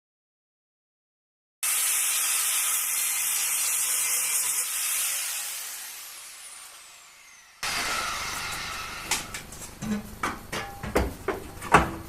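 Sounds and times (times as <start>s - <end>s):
angle grinder cutting steel: 1.6s - 9.8s.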